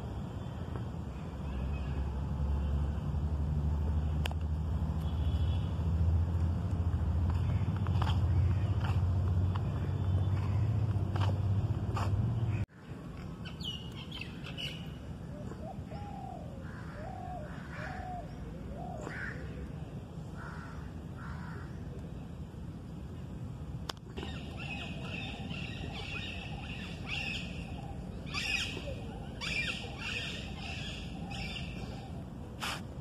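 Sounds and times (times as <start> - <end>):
birds calling: 7.2 - 21.8, 24.1 - 32.8.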